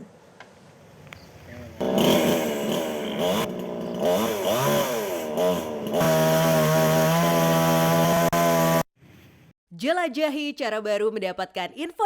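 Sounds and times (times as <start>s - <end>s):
chainsaw revving: 1.8s - 8.9s.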